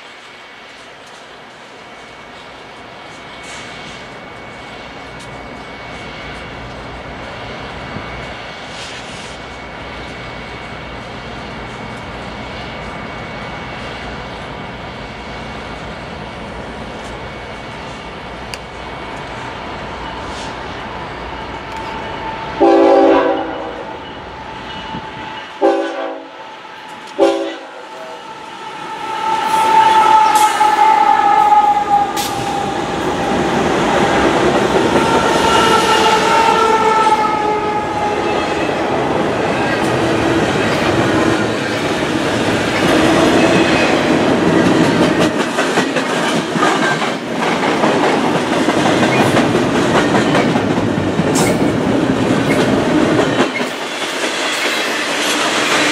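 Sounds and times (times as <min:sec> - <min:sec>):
train passing close by: 0:00.0 - 0:55.9
train horn blasts: 0:22.5 - 0:24.0, 0:25.0 - 0:26.4, 0:27.0 - 0:33.0, 0:34.8 - 0:38.9.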